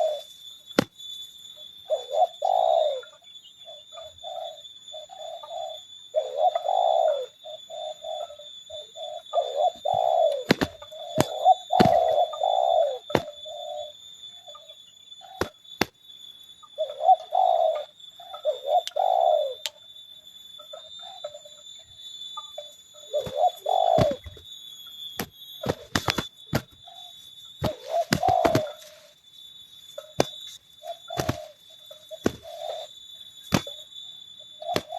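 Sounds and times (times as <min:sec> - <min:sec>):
doves cooing: 0:00.0 - 0:00.9, 0:01.8 - 0:15.9, 0:16.6 - 0:19.8, 0:22.4 - 0:24.5, 0:25.2 - 0:29.2, 0:30.0 - 0:34.9
birds clashing knocks and slaps: 0:00.7 - 0:01.0, 0:09.6 - 0:13.7, 0:15.3 - 0:16.0, 0:23.2 - 0:24.4, 0:25.2 - 0:26.9, 0:27.6 - 0:29.0, 0:30.0 - 0:33.9, 0:34.6 - 0:34.9.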